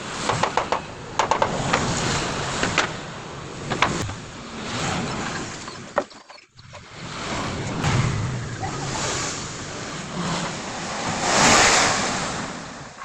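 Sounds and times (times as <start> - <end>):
steady rushing background noise: 0.0 - 6.0, 7.0 - 13.0
wood knocking on wood: 2.6 - 3.0, 3.7 - 4.2.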